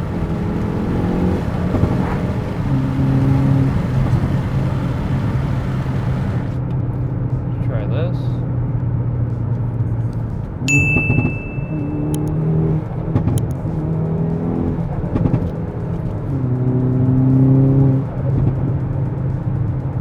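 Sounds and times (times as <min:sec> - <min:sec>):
sharp exhaust pops: 0:00.0 - 0:06.6
car engine accelerating: 0:00.0 - 0:07.5, 0:08.4 - 0:20.0.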